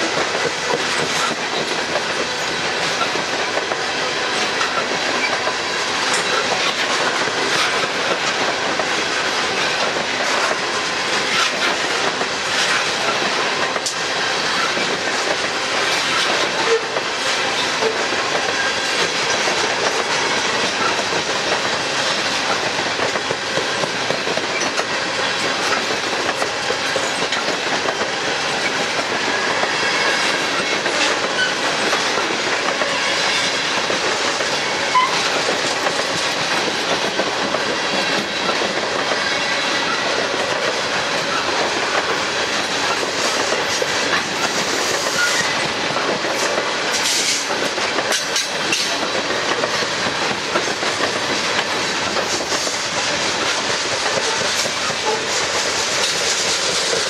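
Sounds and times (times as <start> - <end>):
train wheels clattering on rails: 0.0 - 57.0.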